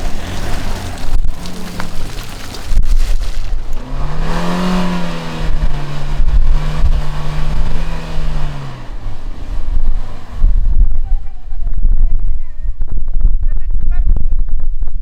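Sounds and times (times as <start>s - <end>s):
engine revving: 0.0s - 2.5s, 3.7s - 12.4s.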